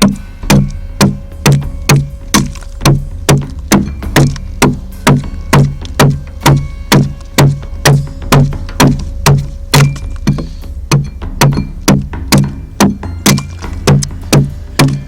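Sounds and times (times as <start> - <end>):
blade chopping into wood: 0.0 - 6.2.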